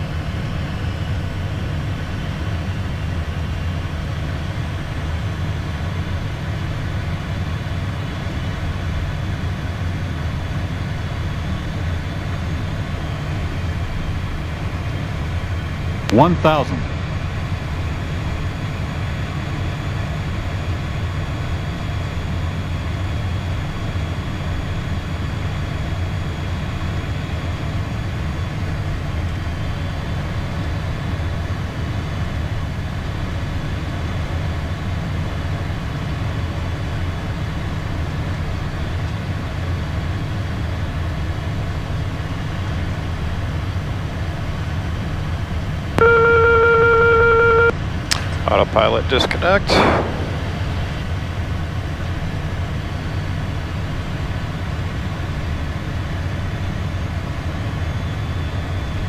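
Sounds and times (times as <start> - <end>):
multi-tone warning alert: 46.0 - 47.7
jet cockpit drone: 46.0 - 51.4.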